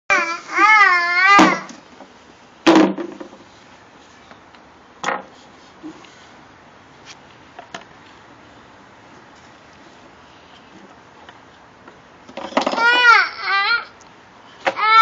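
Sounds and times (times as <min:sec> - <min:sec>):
baby crying: 0:00.1 - 0:01.7, 0:12.8 - 0:14.0, 0:14.7 - 0:15.0.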